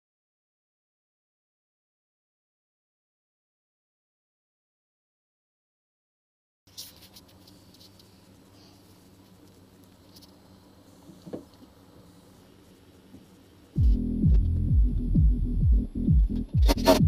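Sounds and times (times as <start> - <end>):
faint room noise: 6.7 - 17.0
electronic music with heavy bass: 13.8 - 17.0.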